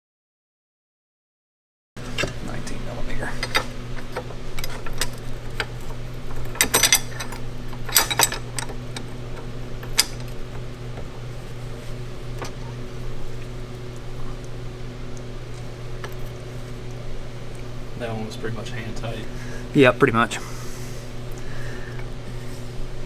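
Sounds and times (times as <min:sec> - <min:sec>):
steady low hum: 0:02.0 - 0:23.0
metal tools clinking: 0:06.4 - 0:08.5.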